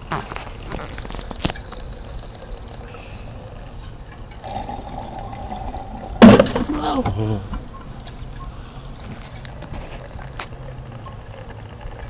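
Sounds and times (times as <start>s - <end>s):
gasoline trickling into fuel tank: 0.0s - 12.0s.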